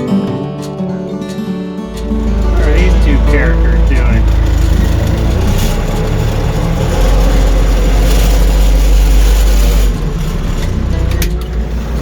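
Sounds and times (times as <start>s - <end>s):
heavy vehicle engine rumbling: 1.8s - 12.0s.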